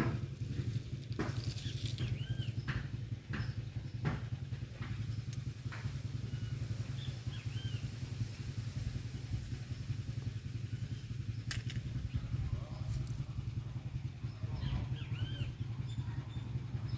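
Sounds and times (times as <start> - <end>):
steady low rumble: 0.0 - 16.9
bird chirps: 1.5 - 2.7, 14.3 - 16.9.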